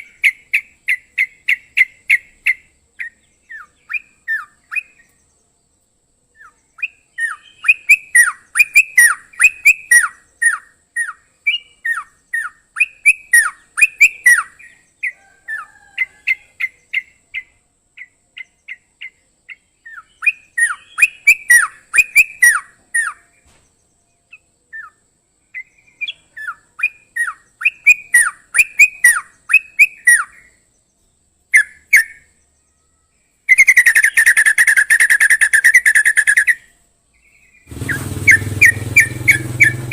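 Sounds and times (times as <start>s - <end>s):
bird singing sharp notes: 6.3s - 14.8s, 16.9s - 30.6s, 31.5s - 39.9s.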